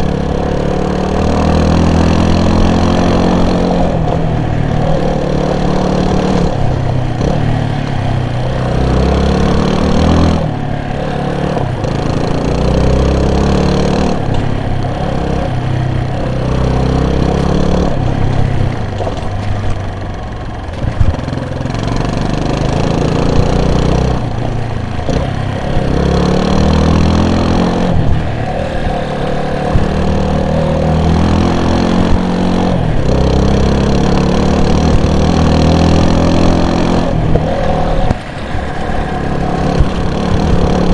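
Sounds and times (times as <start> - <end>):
vehicle engine accelerating: 0.0 - 40.9.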